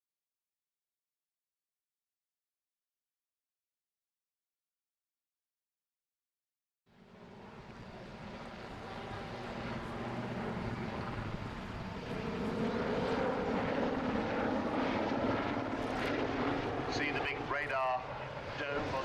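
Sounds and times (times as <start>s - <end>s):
helicopter rotors and engines drone: 6.9s - 19.0s.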